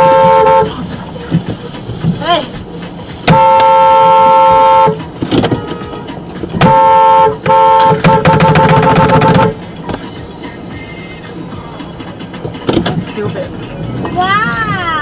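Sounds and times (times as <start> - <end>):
car horn blaring: 0.0 - 0.8, 3.2 - 9.6
road noise: 0.0 - 15.0.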